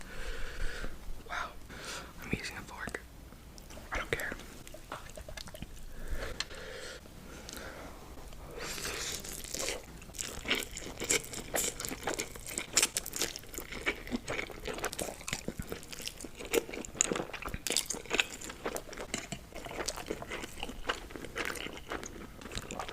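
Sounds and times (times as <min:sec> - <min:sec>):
chewing and crunching noodles: 0:04.6 - 0:06.4, 0:07.4 - 0:22.9.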